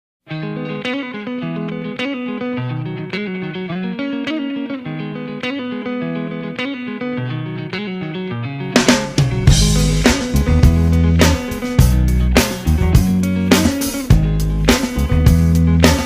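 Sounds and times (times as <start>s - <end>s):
instrumental music: 0.2s - 16.0s
drums: 8.7s - 16.0s.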